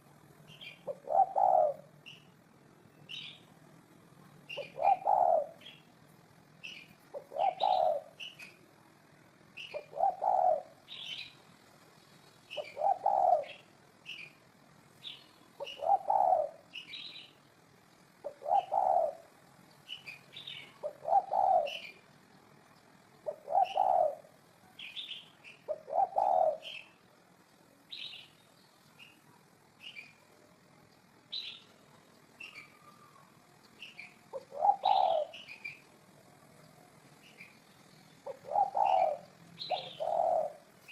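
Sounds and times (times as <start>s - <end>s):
dove cooing: 0.0s - 2.3s, 4.5s - 5.9s, 6.6s - 8.6s, 9.6s - 11.4s, 12.5s - 14.4s, 15.6s - 17.1s, 18.2s - 22.1s, 23.2s - 27.0s, 32.4s - 37.6s, 38.2s - 40.9s
small birds chirping: 0.0s - 40.9s.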